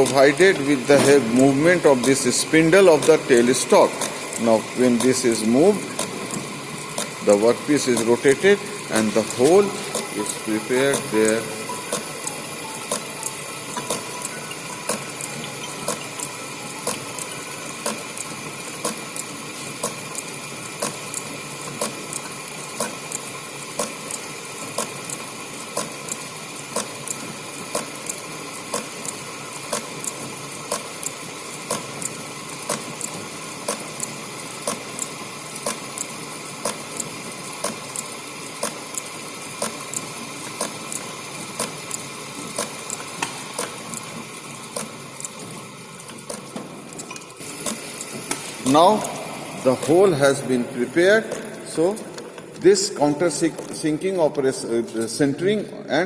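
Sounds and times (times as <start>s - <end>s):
lathe running: 0.0s - 54.3s
sharp clicks: 9.2s - 20.2s.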